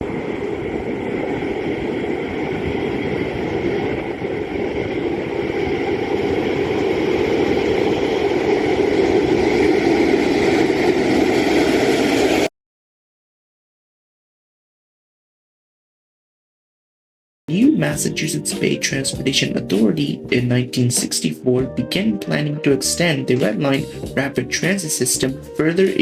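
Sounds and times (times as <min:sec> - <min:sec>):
rapid transit train rumbling: 0:00.0 - 0:12.5.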